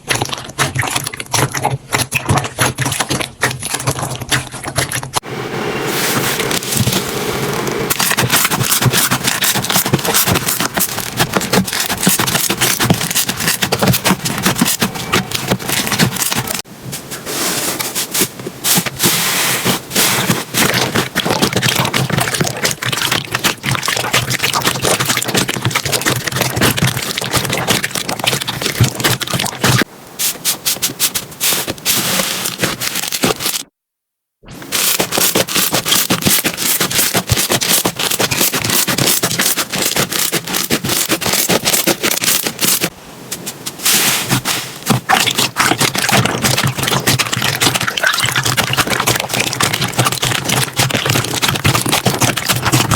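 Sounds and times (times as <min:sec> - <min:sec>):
slime being squished by hand: 0:07.9 - 0:16.6, 0:34.6 - 0:42.9, 0:43.8 - 0:52.9.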